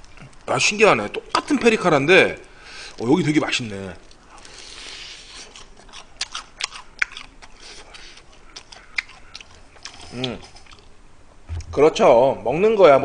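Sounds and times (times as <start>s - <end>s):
fried chicken crunching: 2.4s - 10.9s.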